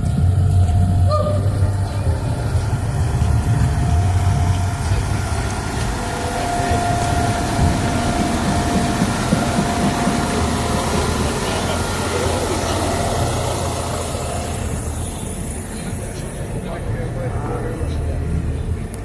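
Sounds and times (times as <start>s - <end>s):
thin steady whine: 0.0s - 19.0s
truck engine rumbling: 0.0s - 19.0s.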